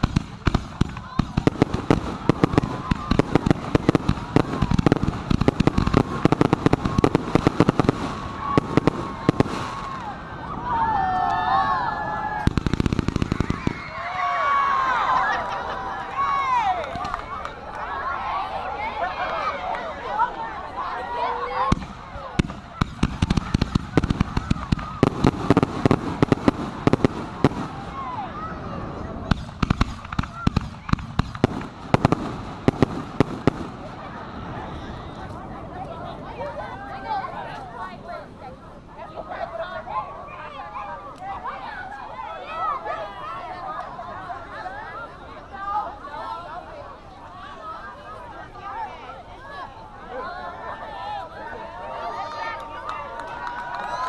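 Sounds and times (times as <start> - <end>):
fireworks bangs and cracks: 0.0 - 10.6, 12.3 - 14.1, 21.6 - 35.8.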